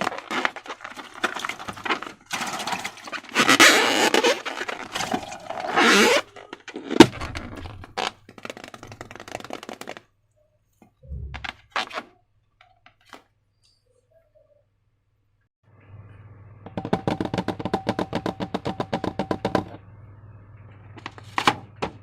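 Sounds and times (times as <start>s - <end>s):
slime scraping and rustling: 0.0s - 10.0s.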